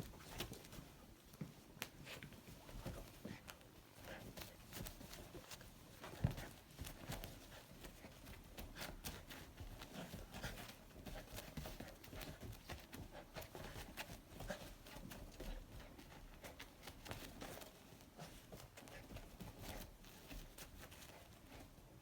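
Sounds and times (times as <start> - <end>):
animals scuffling on bedding: 0.0 - 22.0.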